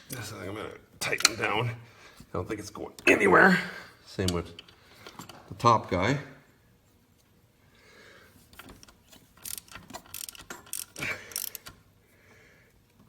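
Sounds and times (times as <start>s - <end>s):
hand ratchet clicking: 8.6s - 11.8s.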